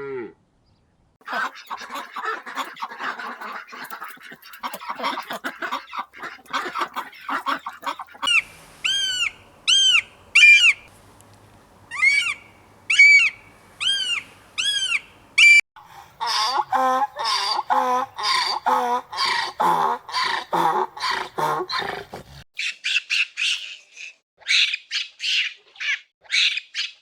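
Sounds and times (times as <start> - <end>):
rapid chattering calls: 1.2 - 11.2, 11.8 - 15.6
bird squawking: 1.3 - 10.9, 11.9 - 15.6
lower-pitched animal call: 8.2 - 10.9, 11.9 - 15.6.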